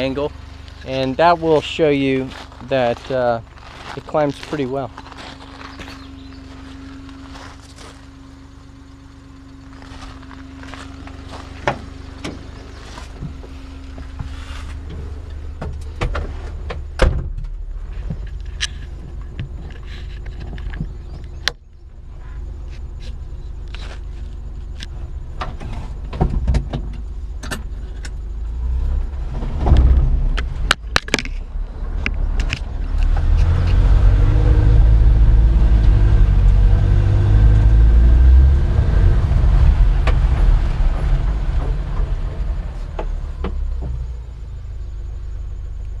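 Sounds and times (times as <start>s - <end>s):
truck engine working hard: 0.0s - 46.0s
truck knocks and rattles: 9.8s - 21.6s, 25.2s - 28.2s, 29.0s - 34.8s, 38.6s - 44.5s.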